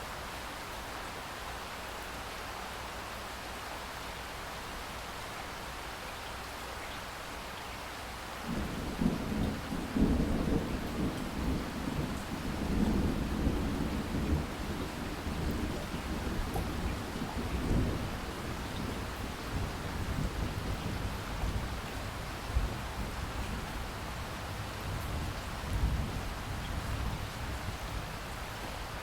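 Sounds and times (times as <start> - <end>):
rain hiss: 0.0 - 29.0
thunder rumbling: 8.5 - 28.1.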